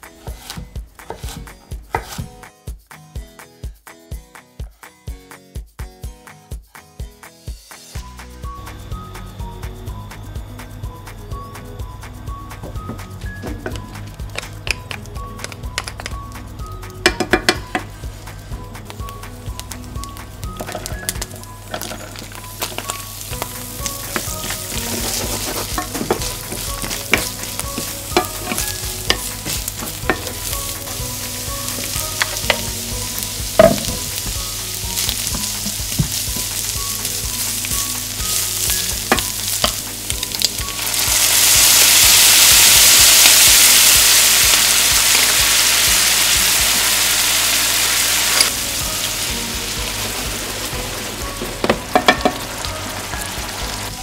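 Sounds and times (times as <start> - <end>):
wooden spatula knocking and scraping pan: 0.1 - 2.4, 20.6 - 40.3, 51.4 - 52.5
food sizzling in frying pan: 0.2 - 2.2, 12.8 - 54.0
liquid hissing in hot pan: 22.6 - 53.9.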